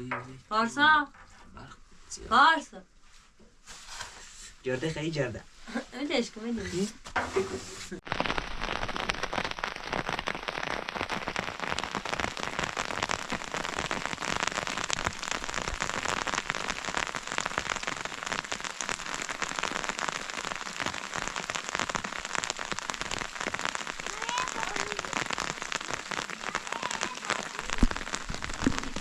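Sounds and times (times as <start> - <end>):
rain pattering on hard surface: 8.0 - 29.0.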